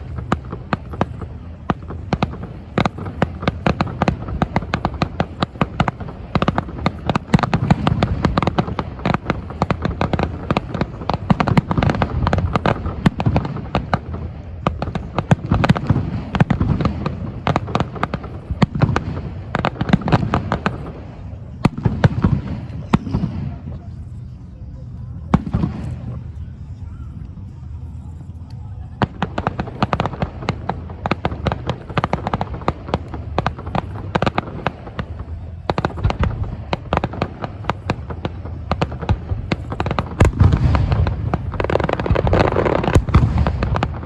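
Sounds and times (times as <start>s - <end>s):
fireworks bangs and crackles: 0.0s - 44.0s
low booming rumble: 0.0s - 44.0s.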